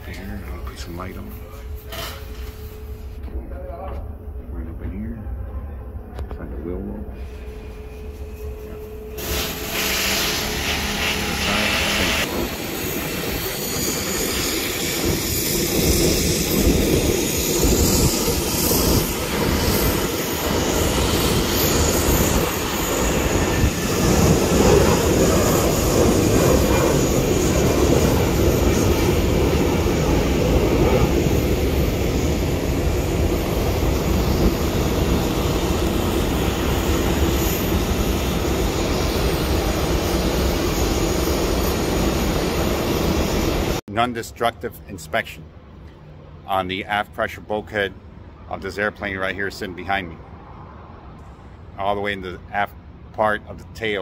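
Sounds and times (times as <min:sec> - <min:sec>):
jet engines roaring: 0:05.9 - 0:43.8.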